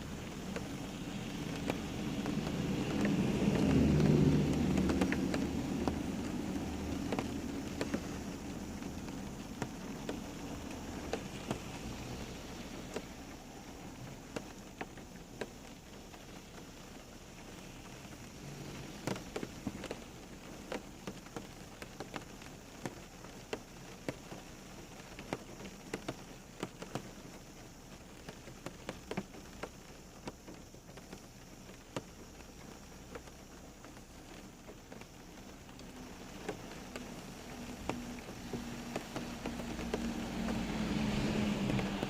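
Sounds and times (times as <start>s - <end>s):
rain falling steadily: 0.0s - 42.0s.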